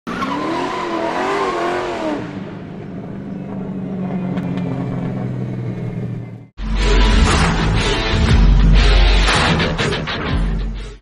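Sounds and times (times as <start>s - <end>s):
engine revving and droning: 0.1s - 8.2s.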